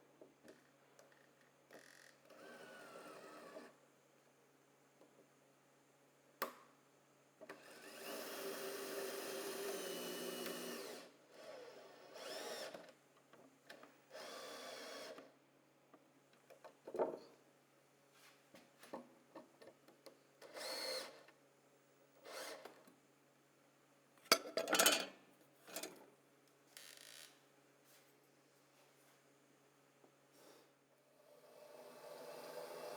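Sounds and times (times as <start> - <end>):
power drill driving screws: 7.7 - 12.8, 20.5 - 21.2.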